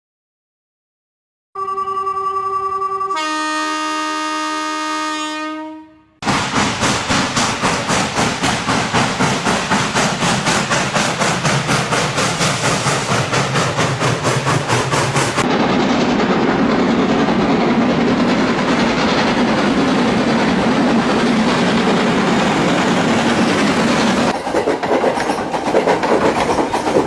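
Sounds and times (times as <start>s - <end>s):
train horn chord: 1.6s - 6.2s
train wheels clattering over rails: 6.2s - 27.0s.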